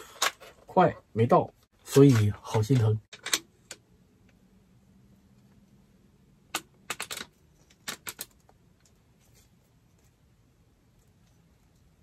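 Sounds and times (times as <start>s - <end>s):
hard parts clicking and rattling: 1.9s - 3.9s, 6.5s - 9.0s.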